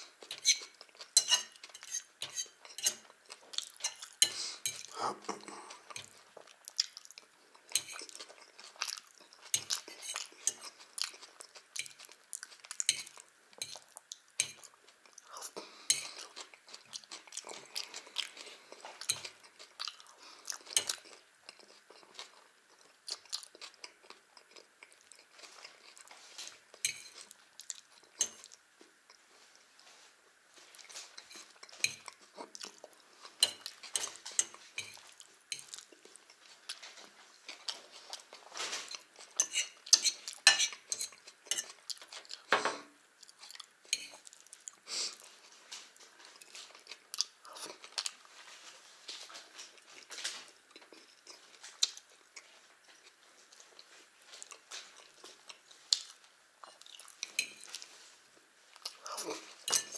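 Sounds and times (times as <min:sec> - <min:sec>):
fork clinking on china plate: 0:01.2 - 0:03.0, 0:59.7 - 0:59.9.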